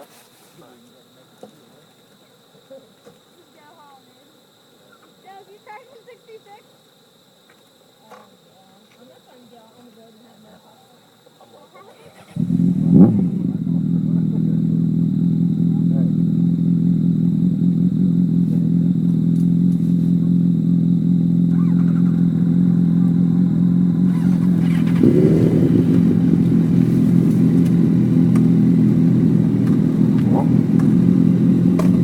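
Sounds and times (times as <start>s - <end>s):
motorcycle engine idling and revving: 12.2s - 32.0s.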